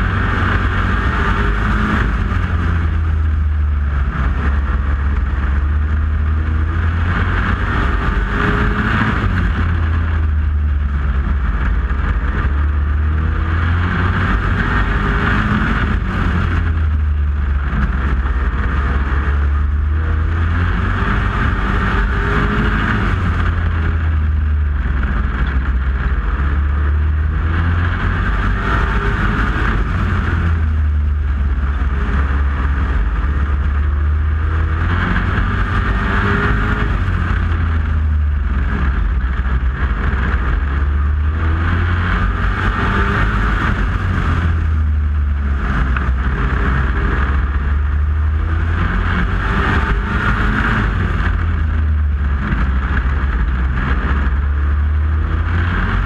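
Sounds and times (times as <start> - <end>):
truck engine revving hard: 0.0 - 56.0.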